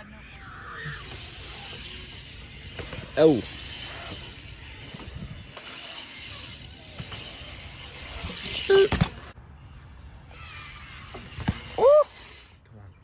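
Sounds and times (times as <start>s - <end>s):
bike tyres hissing on wet pavement: 10.3s - 12.6s.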